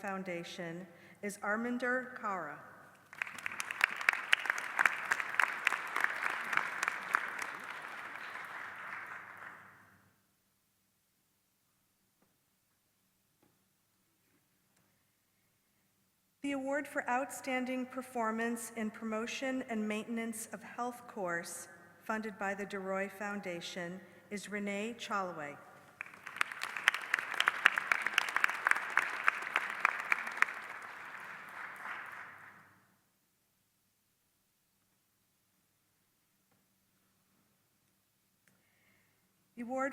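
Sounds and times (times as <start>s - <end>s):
audience applauding: 3.0s - 9.8s, 26.0s - 32.6s.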